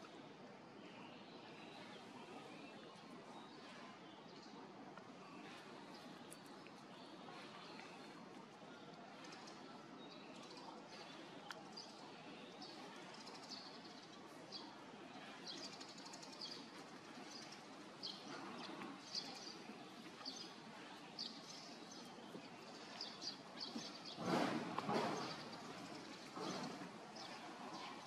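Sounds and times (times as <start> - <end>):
small birds chirping: 1.4 - 28.0.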